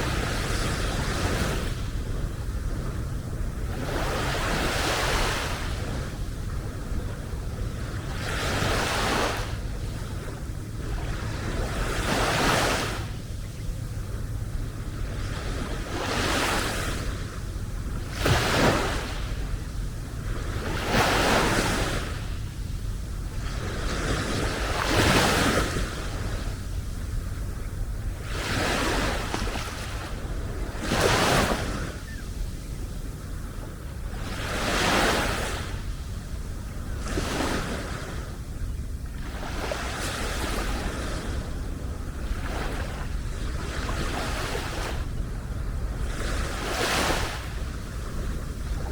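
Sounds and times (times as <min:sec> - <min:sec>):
small waves washing on sand: 0:00.0 - 0:48.9
wind rumble on microphone: 0:00.0 - 0:48.9.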